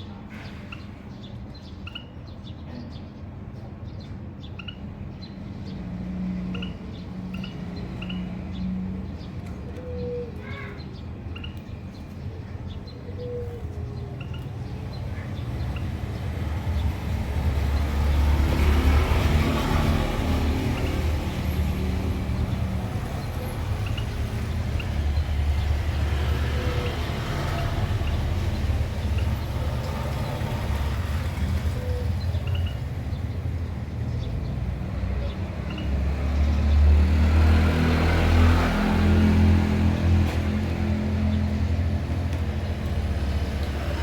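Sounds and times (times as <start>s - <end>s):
vehicle engine rumble: 7.7s - 44.0s.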